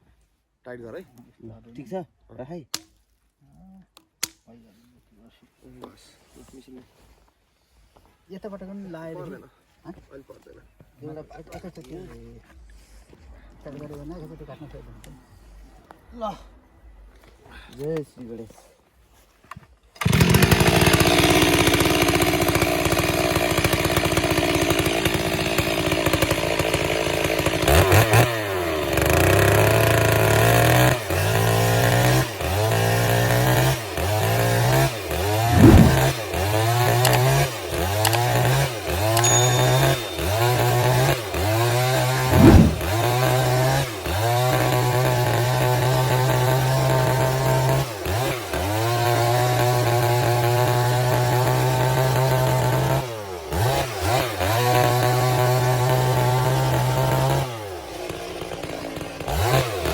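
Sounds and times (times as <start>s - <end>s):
chainsaw cutting a log: 20.0s - 59.9s.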